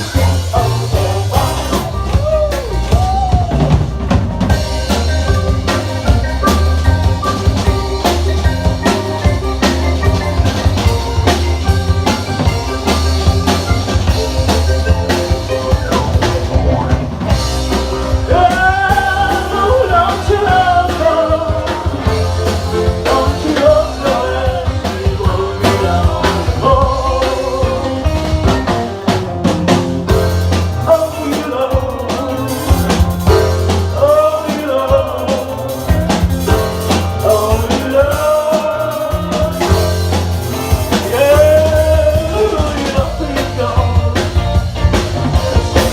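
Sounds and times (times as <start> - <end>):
person singing: 0.0 - 3.9, 18.0 - 28.5, 30.8 - 44.8
bass guitar: 0.0 - 45.9
drum kit: 0.0 - 45.9
guitars: 0.0 - 45.9.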